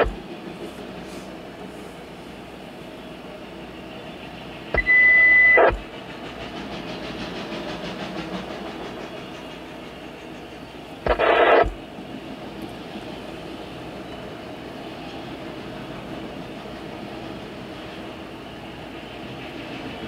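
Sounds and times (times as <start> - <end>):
high whine: 0.0 - 0.2, 4.7 - 5.9, 11.0 - 11.8
freight train rumbling past: 0.0 - 20.0.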